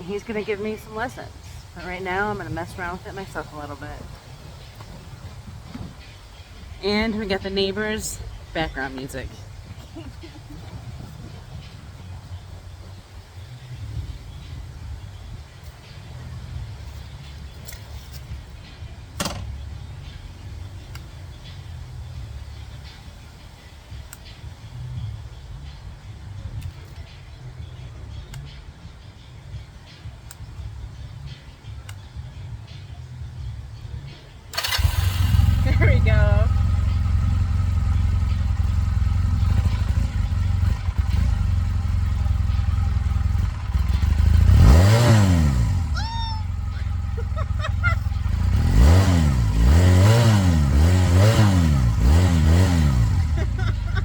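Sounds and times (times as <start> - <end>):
motorcycle engine idling: 0.0 - 54.0
sharp clunk: 19.2 - 19.6.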